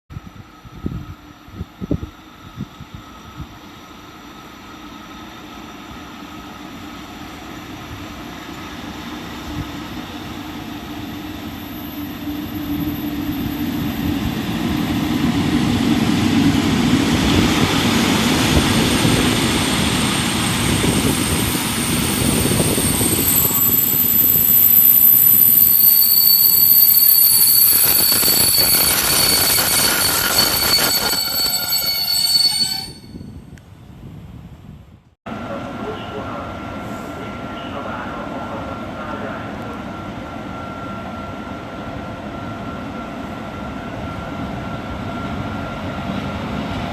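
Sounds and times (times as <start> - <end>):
train passing: 0.4 - 33.3, 35.3 - 46.9
wheels rumbling on rails: 7.2 - 25.8, 27.3 - 36.8
high whining tones: 8.8 - 33.4.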